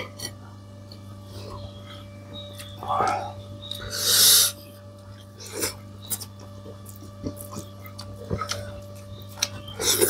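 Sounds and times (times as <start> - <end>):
low electrical hum: 0.0 - 10.0
chewing clicks and smacks: 6.0 - 10.0.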